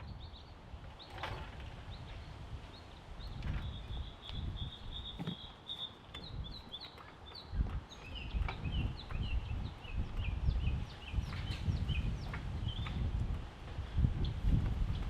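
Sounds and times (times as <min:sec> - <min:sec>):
small bird chirping: 0:01.9 - 0:13.1.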